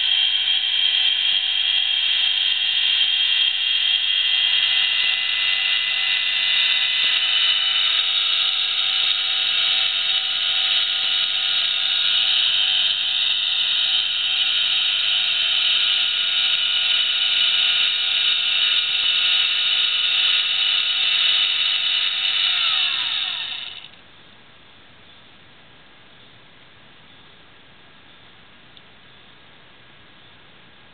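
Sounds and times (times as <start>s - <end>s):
motors whining: 0.0s - 24.0s.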